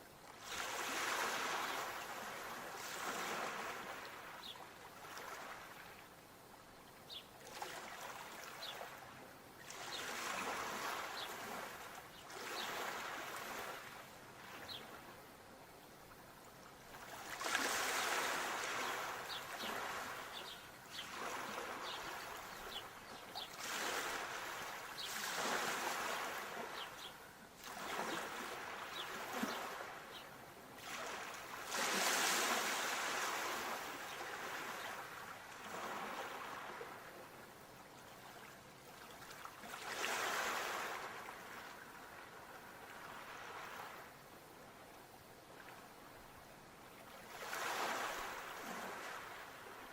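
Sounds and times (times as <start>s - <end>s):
sea waves washing in: 0.4s - 4.4s, 17.0s - 30.2s, 30.8s - 37.0s.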